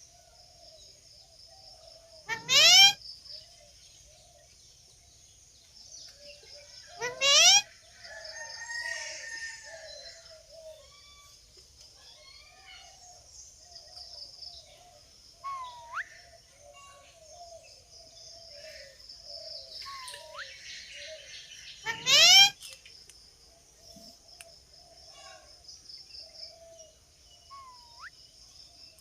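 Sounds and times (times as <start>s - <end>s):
parrot chattering: 2.3s - 3.0s, 7.0s - 7.6s, 21.8s - 22.5s.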